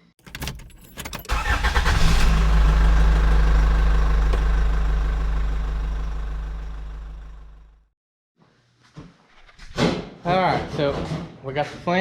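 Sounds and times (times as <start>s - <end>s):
vehicle engine starting and idling: 0.4s - 7.8s.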